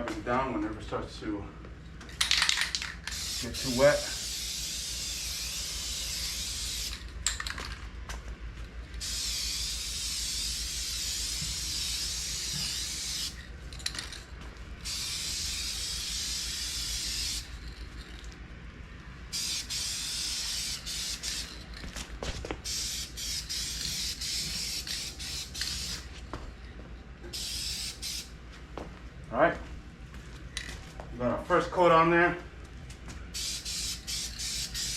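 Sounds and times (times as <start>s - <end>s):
spray paint can spraying: 2.2s - 7.6s, 9.0s - 14.2s, 14.8s - 18.3s, 19.3s - 22.0s, 22.6s - 26.1s, 27.3s - 28.3s, 33.4s - 34.9s.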